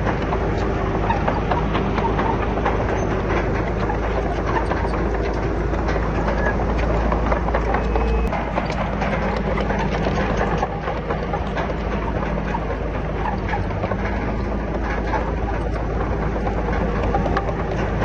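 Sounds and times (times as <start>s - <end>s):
bulldozer diesel engine running: 0.0s - 18.0s
metallic clatter of steel tracks: 0.0s - 18.0s.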